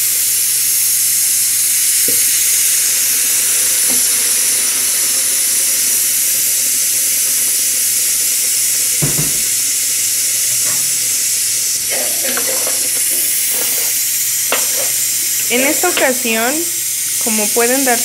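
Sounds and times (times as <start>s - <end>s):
meat sizzling in clay pot: 0.0s - 18.0s
sauce pouring: 1.3s - 17.2s
clunk: 14.5s - 15.0s.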